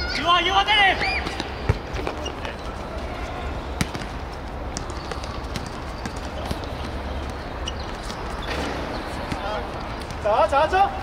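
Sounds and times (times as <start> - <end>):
ball being kicked: 3.8 - 7.0.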